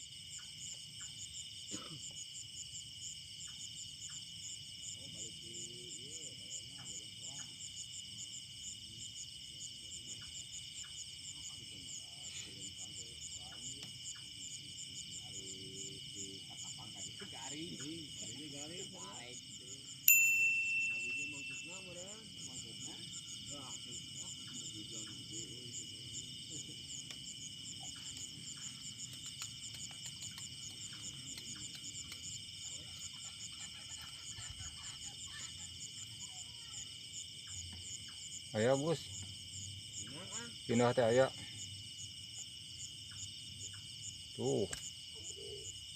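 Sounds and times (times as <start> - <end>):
fast repeating insect chirps: 0.0 - 45.9
faint distant voices: 4.8 - 29.1
shrill insect drone: 15.2 - 26.8.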